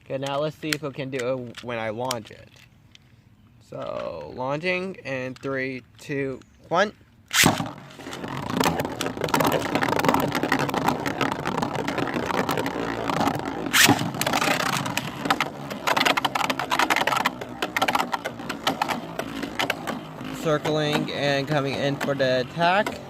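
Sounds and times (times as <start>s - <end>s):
launcher snap: 7.3s - 7.8s
spinning tops clattering in stadium: 7.4s - 23.0s.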